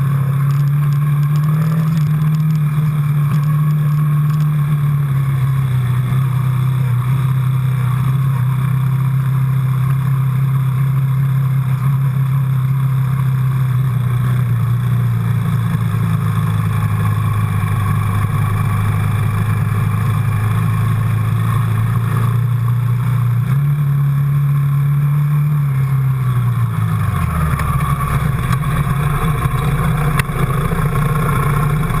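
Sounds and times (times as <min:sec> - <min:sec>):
quad bike engine running: 0:00.0 - 0:32.0.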